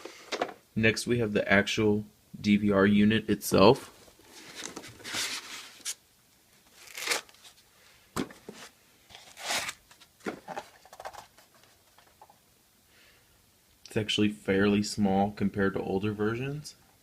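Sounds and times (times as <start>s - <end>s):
packaging rustling and crinkling: 4.0s - 6.0s, 6.6s - 7.6s, 8.2s - 12.2s.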